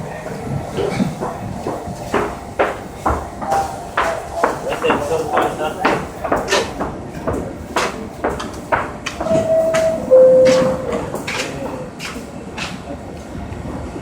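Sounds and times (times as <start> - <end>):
knocks and clatter: 0.8 - 12.8
two-tone door chime: 9.2 - 11.1.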